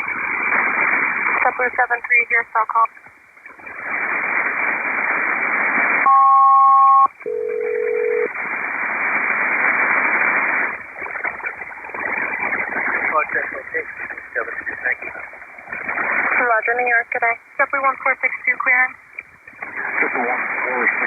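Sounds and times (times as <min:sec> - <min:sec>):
radio hiss: 0:00.0 - 0:06.1, 0:08.1 - 0:21.0
paired radio tones: 0:00.0 - 0:21.0.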